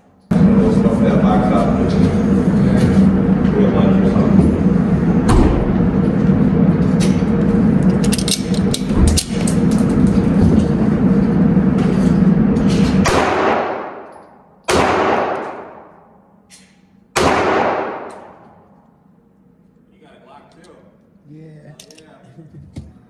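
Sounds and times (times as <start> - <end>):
loud steady rumbling noise: 0.0 - 19.3
gunshots echoing indoors: 5.2 - 7.3, 12.5 - 16.3, 17.1 - 18.7.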